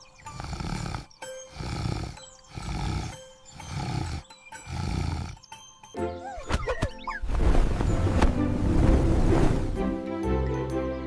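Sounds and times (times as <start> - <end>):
cartoon animal snoring: 0.2 - 5.4.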